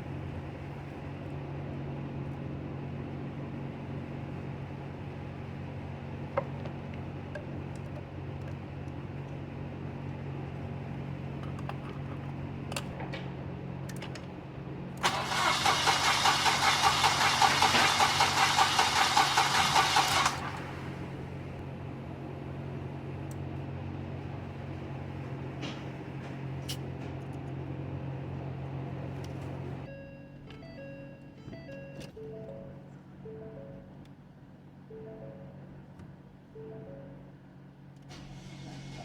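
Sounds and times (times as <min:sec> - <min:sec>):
starter cranking engine: 0:15.0 - 0:21.1
low steady hum: 0:28.6 - 0:39.0.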